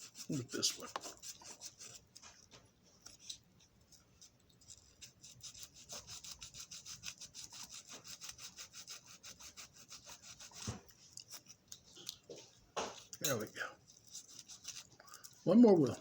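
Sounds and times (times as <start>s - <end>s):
sandpaper scrubbing metal wheel: 0.0s - 2.0s, 4.9s - 10.7s, 14.2s - 15.8s.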